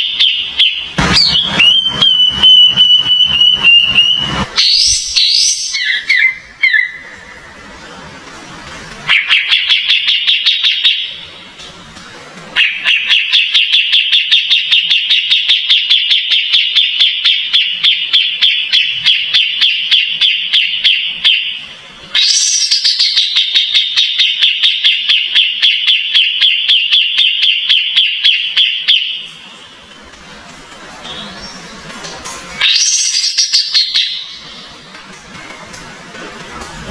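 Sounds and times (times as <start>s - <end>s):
cage bird chattering: 0.0s - 7.4s, 9.1s - 11.5s, 12.6s - 29.4s, 32.6s - 34.8s.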